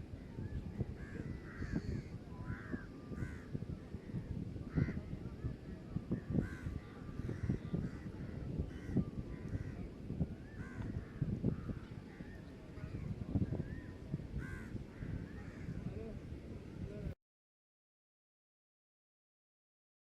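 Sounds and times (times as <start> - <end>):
crows cawing: 1.0 - 3.6, 4.7 - 5.0, 6.4 - 9.9, 10.6 - 12.3, 14.4 - 15.8.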